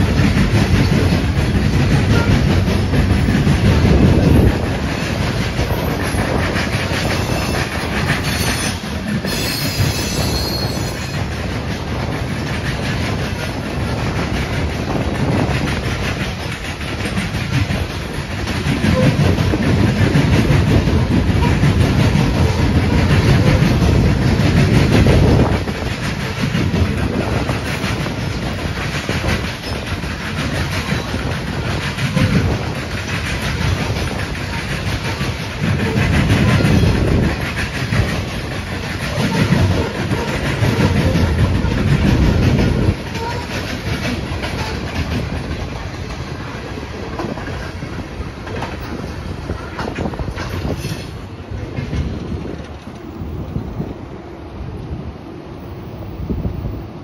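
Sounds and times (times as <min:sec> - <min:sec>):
freight train wheels rumbling: 0:00.0 - 0:57.0
high wheel squeal: 0:07.2 - 0:11.2.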